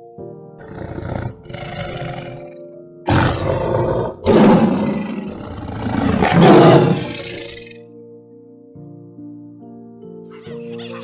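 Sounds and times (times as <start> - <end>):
tiger roaring: 0.6 - 7.7.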